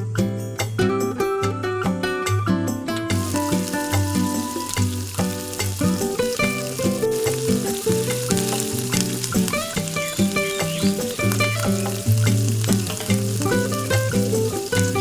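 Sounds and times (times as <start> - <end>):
background music: 0.0 - 15.0
food sizzling in a pan: 3.2 - 15.0.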